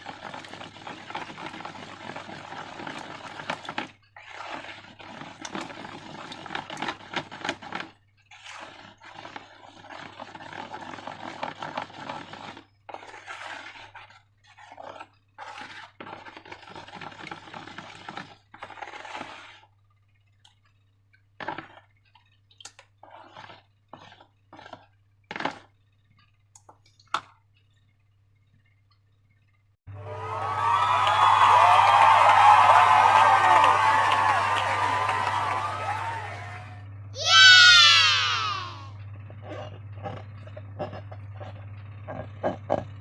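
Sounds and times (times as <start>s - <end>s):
wet slime scraping and squishing: 0.0s - 26.4s, 39.3s - 42.9s.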